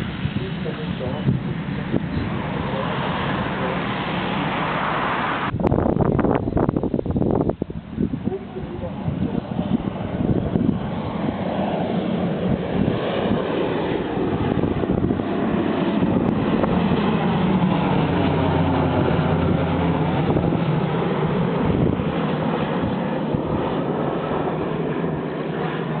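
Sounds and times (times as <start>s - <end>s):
propeller aircraft engine drone: 0.0s - 26.0s.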